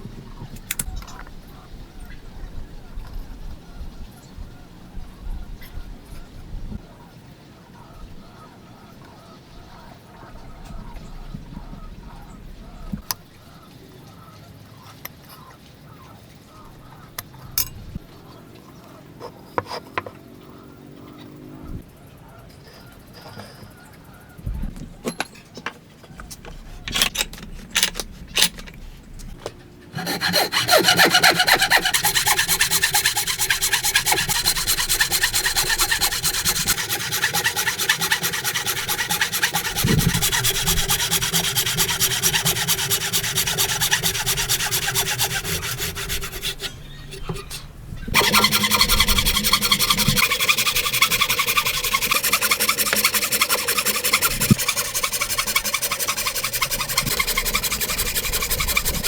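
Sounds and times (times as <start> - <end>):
hand saw cutting wood: 30.0 - 59.0.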